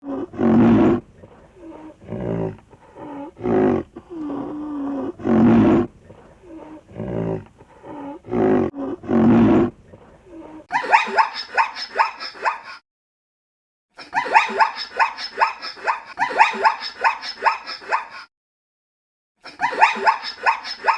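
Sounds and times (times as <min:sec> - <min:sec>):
animal giving pitched calls: 0:10.7 - 0:12.8, 0:14.2 - 0:18.3, 0:19.5 - 0:20.9.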